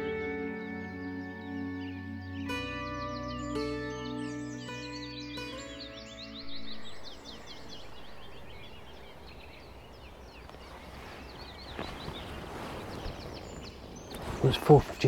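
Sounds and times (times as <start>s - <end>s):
small birds chirping: 0.0s - 15.0s
low rumble of breeze: 6.4s - 15.0s.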